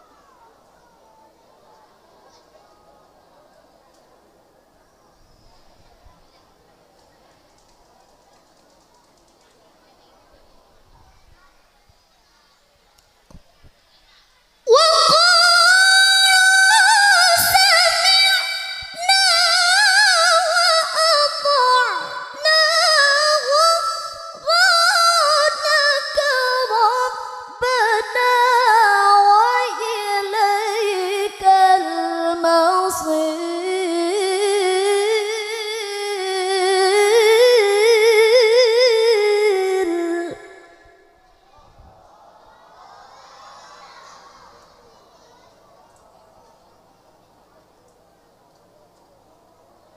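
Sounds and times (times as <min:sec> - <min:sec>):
woman chanting recitation: 0:14.7 - 0:41.2.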